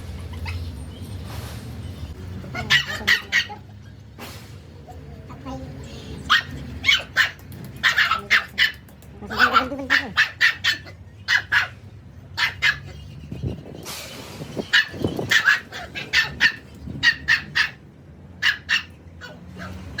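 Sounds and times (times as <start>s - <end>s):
dog barking in sharp yaps: 2.6s - 3.6s, 6.3s - 11.8s, 14.7s - 17.8s.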